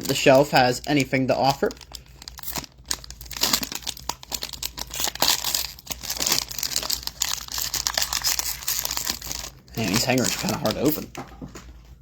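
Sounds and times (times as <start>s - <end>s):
packaging crinkling and tearing: 0.0s - 11.2s.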